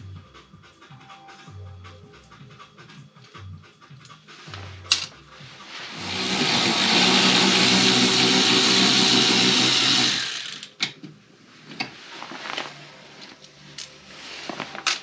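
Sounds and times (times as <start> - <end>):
electric drill-driver spinning: 5.9 - 10.7.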